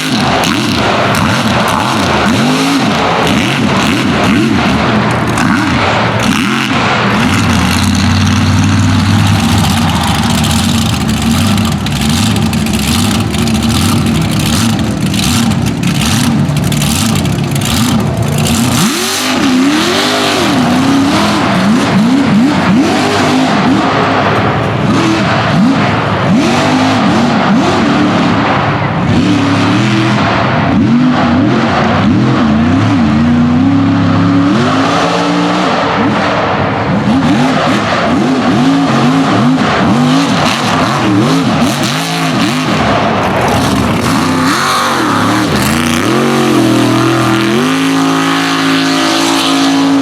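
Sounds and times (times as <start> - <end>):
sharp cracks: 0.0 - 20.8
truck engine revving: 0.0 - 50.0.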